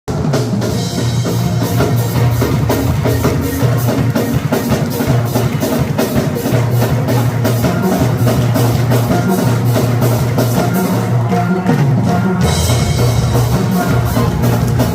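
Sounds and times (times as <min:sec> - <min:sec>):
band playing: 0:00.1 - 0:14.9
bass line: 0:00.1 - 0:14.9
drum kit beat: 0:00.1 - 0:14.9.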